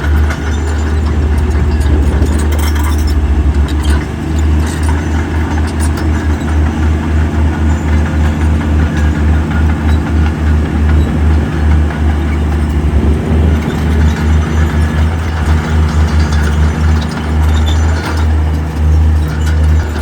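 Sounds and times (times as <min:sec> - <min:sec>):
heavy diesel engine throbbing: 0:00.0 - 0:20.0.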